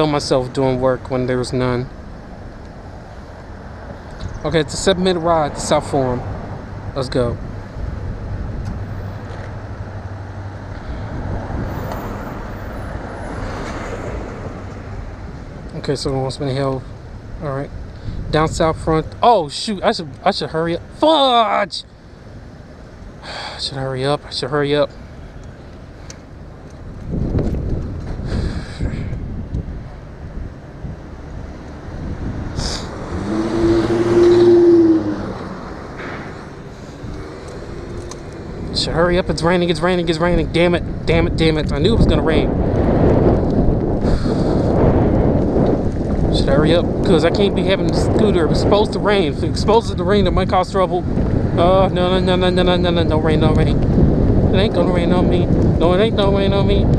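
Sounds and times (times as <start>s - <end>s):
constant low hum: 0.0s - 56.9s
road noise: 0.0s - 56.9s
wind rushing over microphone: 0.0s - 56.9s
motor vehicle passing: 2.0s - 15.9s, 24.9s - 50.4s, 51.0s - 56.9s.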